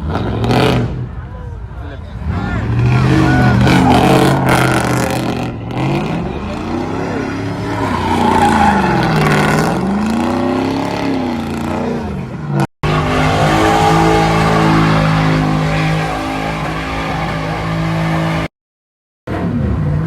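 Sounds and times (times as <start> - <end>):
car engine revving: 2.1 - 18.5.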